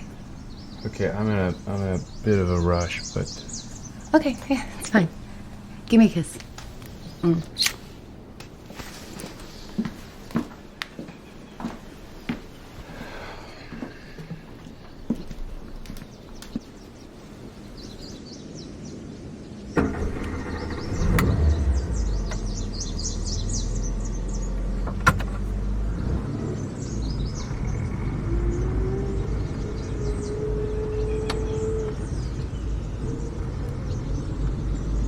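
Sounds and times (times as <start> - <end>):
car engine rumbling: 0.0 - 8.7, 19.7 - 35.0
birds chirping: 0.0 - 35.0.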